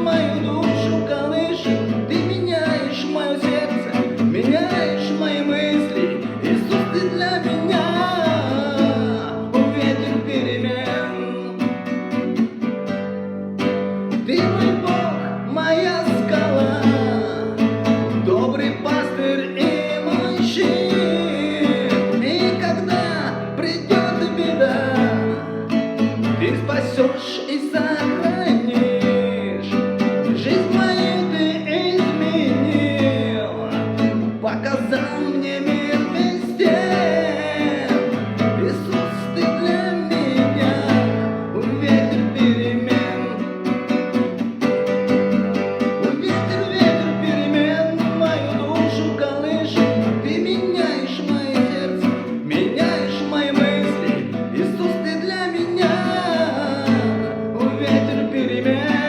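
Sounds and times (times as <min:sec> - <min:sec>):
acoustic guitar strumming: 0:00.0 - 0:59.0
person singing worship song: 0:34.4 - 0:43.3.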